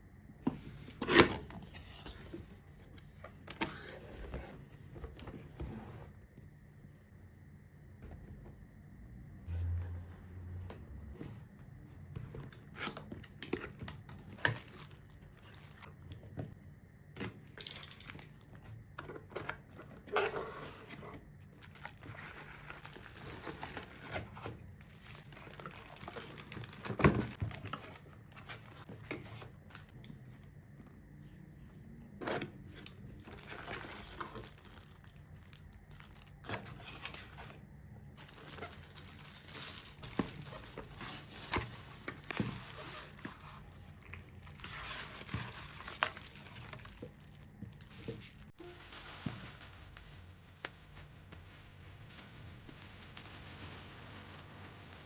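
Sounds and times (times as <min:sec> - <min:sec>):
paper and plastic crinkling: 0:12.2 - 0:15.9, 0:19.2 - 0:30.5, 0:31.2 - 0:50.3.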